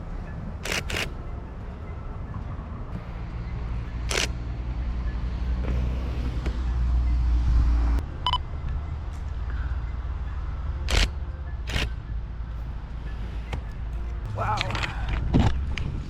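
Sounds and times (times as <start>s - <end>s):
camera shutter firing: 4.1s - 4.3s.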